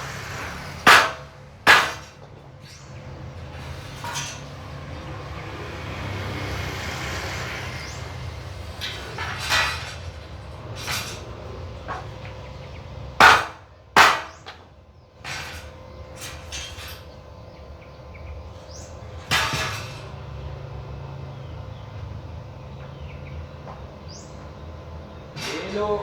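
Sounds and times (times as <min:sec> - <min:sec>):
hammer blows on metal frame: 0:00.0 - 0:05.2, 0:13.2 - 0:14.6.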